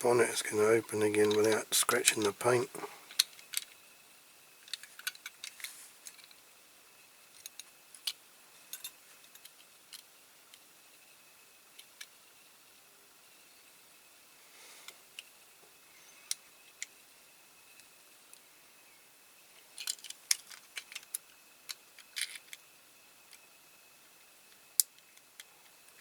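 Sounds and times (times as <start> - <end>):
toy car parts clicking: 3.1 - 3.8, 4.6 - 6.4, 7.4 - 10.1, 19.7 - 22.6, 24.5 - 26.0.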